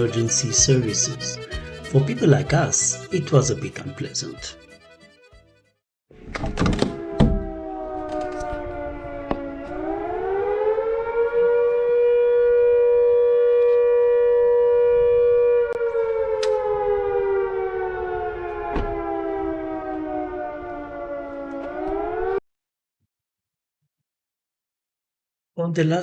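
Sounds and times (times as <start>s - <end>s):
siren wailing: 0.0s - 2.9s, 6.6s - 22.4s.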